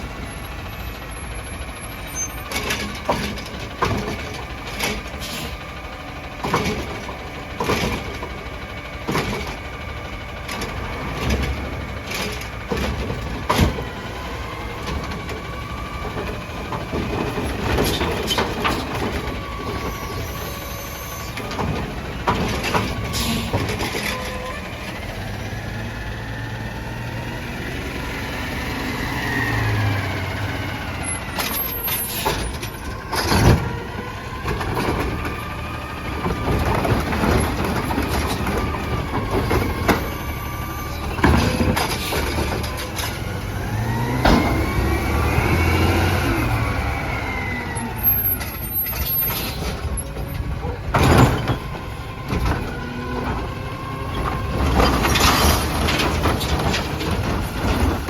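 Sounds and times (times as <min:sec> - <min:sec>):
garbage truck engine revving: 0:00.0 - 0:58.0
loud clanks and knocks: 0:02.4 - 0:05.7, 0:06.3 - 0:20.3, 0:21.2 - 0:24.5, 0:31.2 - 0:46.8, 0:48.0 - 0:58.0.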